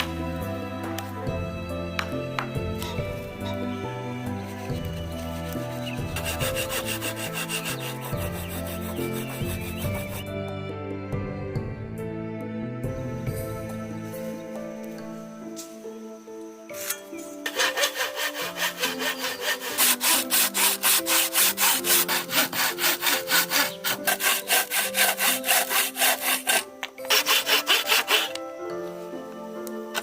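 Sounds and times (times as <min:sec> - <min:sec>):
handsaw cutting wood: 0:04.4 - 0:10.2, 0:17.4 - 0:28.4.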